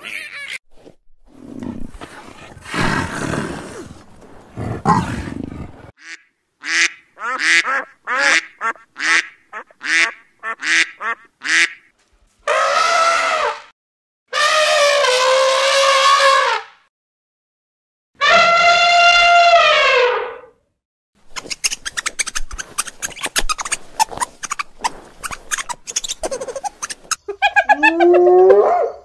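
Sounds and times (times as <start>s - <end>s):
cheetah rumbling: 1.3s - 5.9s.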